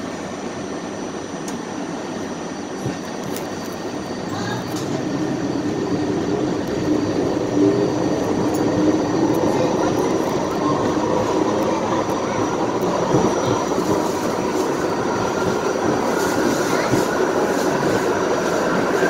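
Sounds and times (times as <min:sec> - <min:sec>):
wheels rumbling on rail: 0:01.4 - 0:19.0
traction motors howling: 0:03.0 - 0:19.0.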